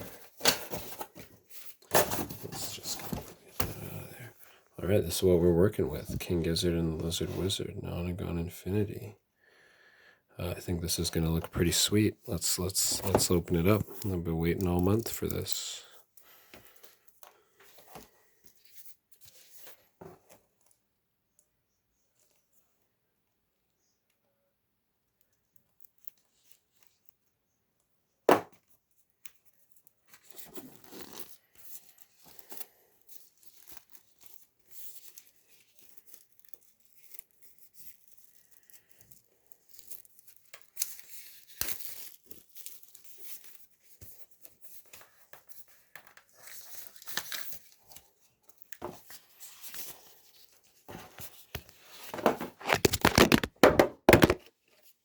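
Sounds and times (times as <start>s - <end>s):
plastic wrap tearing and crinkling: 30.2s - 32.6s, 46.2s - 54.5s.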